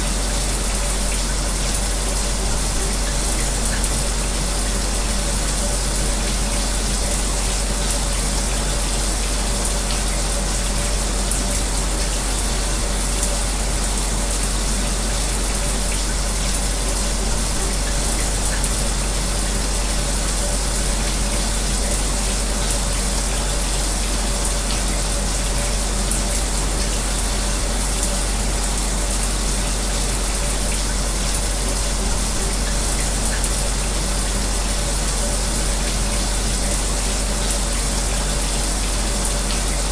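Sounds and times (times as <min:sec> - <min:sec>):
fan humming: 0:00.0 - 0:39.9
shower running: 0:00.0 - 0:39.9.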